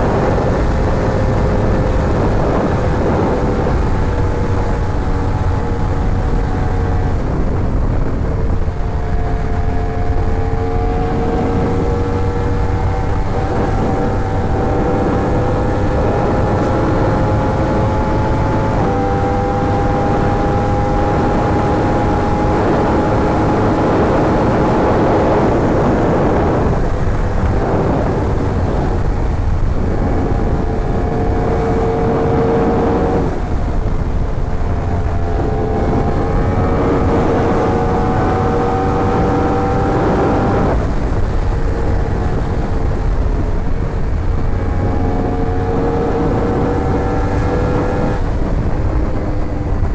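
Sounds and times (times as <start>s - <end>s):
motorcycle engine revving: 0.0s - 49.9s
wind rush on microphone: 0.0s - 49.9s.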